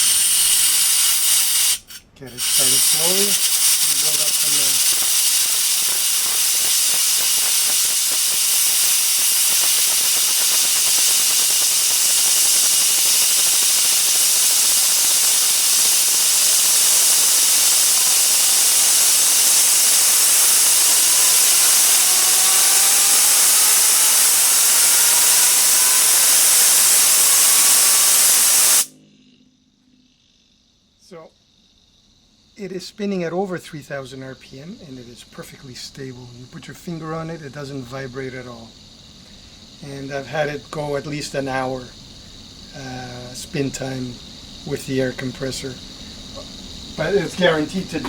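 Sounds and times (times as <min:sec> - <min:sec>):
compressed air hissing: 0:00.0 - 0:28.9, 0:41.8 - 0:48.0
spinner whine: 0:00.0 - 0:31.2, 0:43.6 - 0:48.0.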